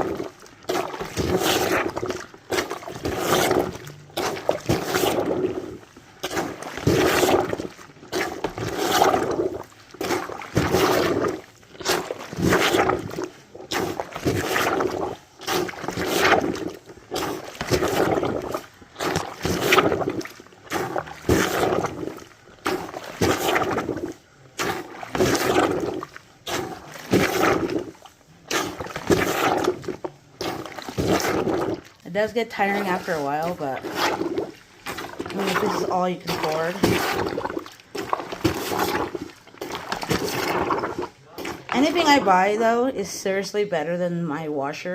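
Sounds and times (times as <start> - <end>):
laundry plunger sloshing water: 0.0 - 44.9.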